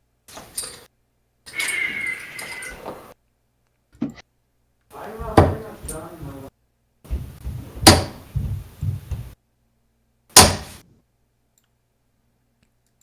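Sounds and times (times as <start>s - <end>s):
darts thunking into dartboard: 7.1s - 9.3s, 10.4s - 10.8s.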